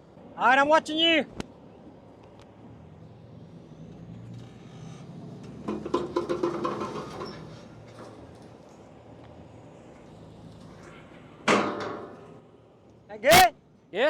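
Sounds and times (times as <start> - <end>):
vehicle engine revving: 2.6 - 11.5
clanking: 4.4 - 8.8, 10.0 - 12.5.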